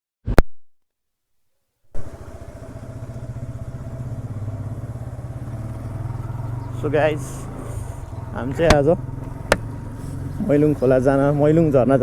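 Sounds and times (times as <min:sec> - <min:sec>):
motorcycle engine running: 0:02.0 - 0:12.0.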